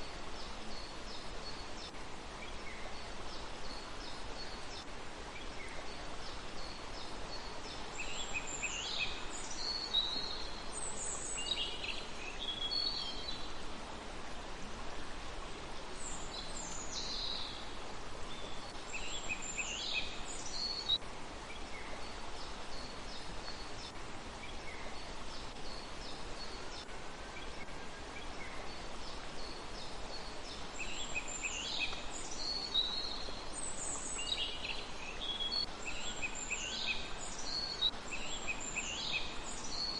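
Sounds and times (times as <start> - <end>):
songbird singing: 0.0 - 13.7, 15.8 - 39.9
background hiss: 0.0 - 39.9.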